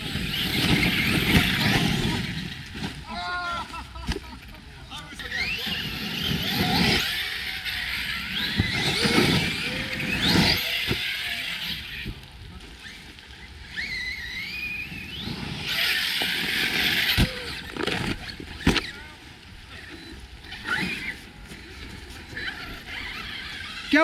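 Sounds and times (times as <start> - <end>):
electric motor whining: 0.0 - 3.1, 4.9 - 24.0
tyres rushing on rough ground: 0.0 - 24.0.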